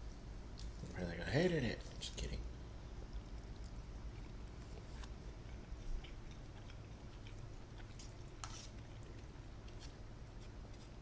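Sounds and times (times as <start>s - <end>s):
low steady hum: 0.0s - 11.0s
person chewing food: 3.2s - 11.0s.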